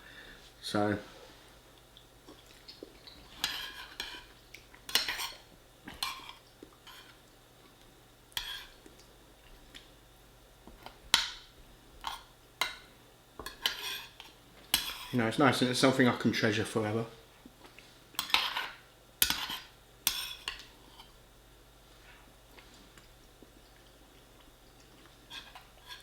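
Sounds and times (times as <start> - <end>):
cutlery scraping on a plate: 3.4 - 4.3, 4.9 - 7.2, 8.4 - 8.8, 13.4 - 15.1, 18.2 - 21.2, 25.3 - 26.0.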